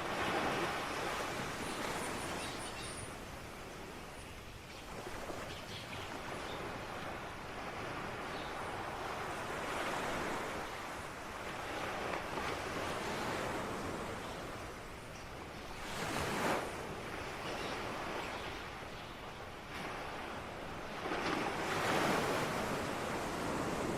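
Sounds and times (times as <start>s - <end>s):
ocean waves on shore: 0.0s - 23.9s.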